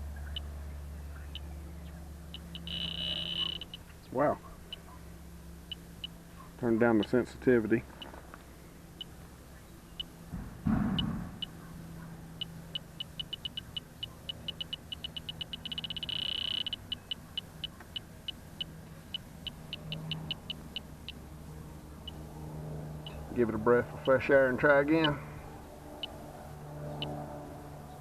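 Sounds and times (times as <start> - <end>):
low steady hum: 0.0 - 28.0
leak detector beeping: 1.2 - 1.6, 2.2 - 3.9, 5.6 - 6.2, 9.9 - 10.2, 12.4 - 21.2, 22.0 - 22.2, 23.0 - 25.2.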